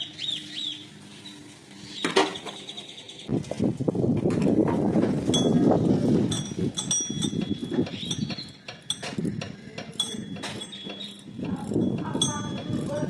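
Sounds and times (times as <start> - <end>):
metal tools clinking on engine parts: 6.3 - 9.3, 10.0 - 13.0.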